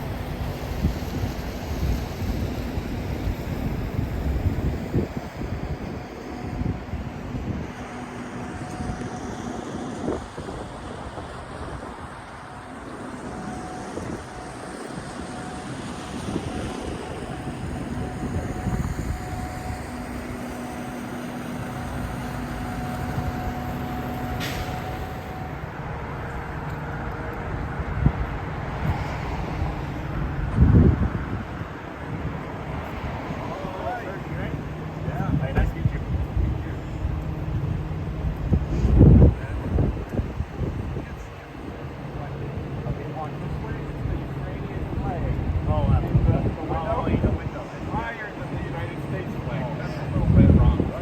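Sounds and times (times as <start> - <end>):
low hum: 0.0 - 33.5
road and engine noise: 0.0 - 51.0.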